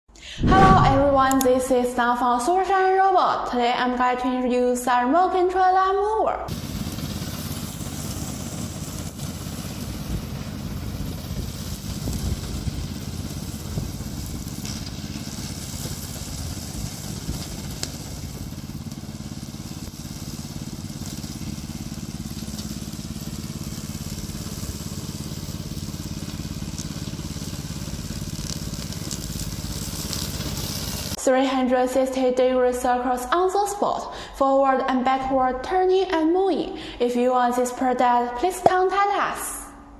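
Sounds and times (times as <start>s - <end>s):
lawn mower engine running: 6.5s - 31.2s.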